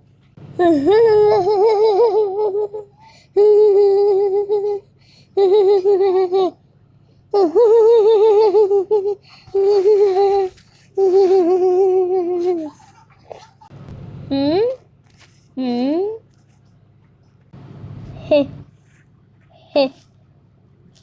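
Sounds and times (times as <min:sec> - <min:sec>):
child humming wavering tones: 0:00.6 - 0:06.6, 0:07.4 - 0:12.8.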